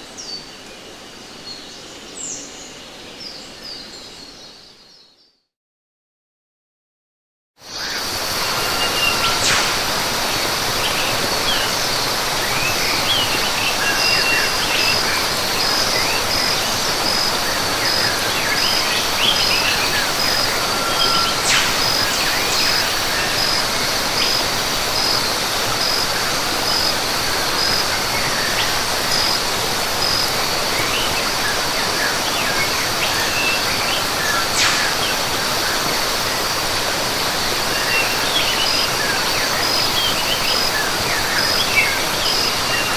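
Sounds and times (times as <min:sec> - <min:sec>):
high pulsing insect call: 0:07.7 - 0:42.9
waterfall rushing: 0:07.7 - 0:42.9
birds chirping: 0:07.9 - 0:36.0.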